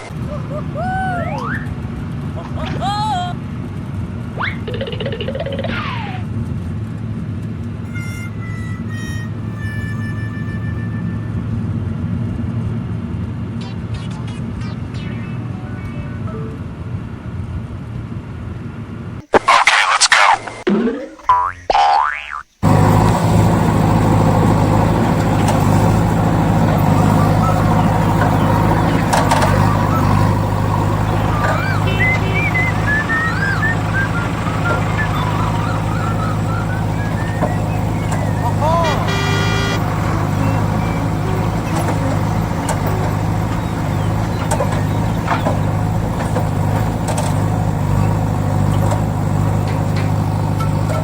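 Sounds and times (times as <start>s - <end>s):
truck engine running: 0.0s - 16.2s, 21.4s - 51.0s
small motor humming: 22.6s - 51.0s.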